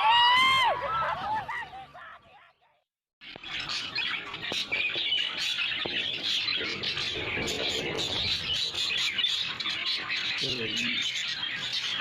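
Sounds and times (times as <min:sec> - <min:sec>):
budgerigars chattering: 0:03.3 - 0:12.0.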